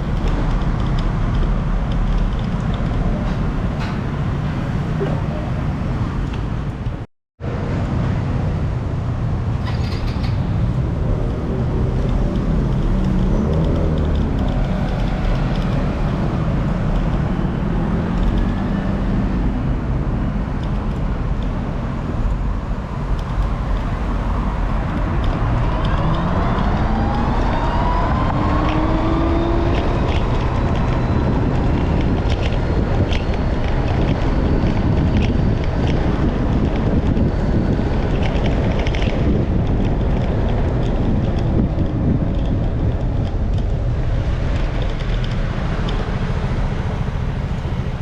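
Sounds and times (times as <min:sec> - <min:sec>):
vehicle engines running: 0:00.0 - 0:48.0
wind buffeting microphone: 0:00.0 - 0:48.0
engine speeding up whine: 0:23.4 - 0:48.0.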